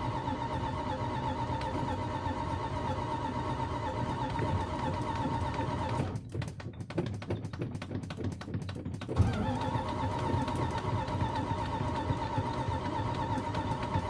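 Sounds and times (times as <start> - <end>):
engine running roughly: 9.1 - 14.0.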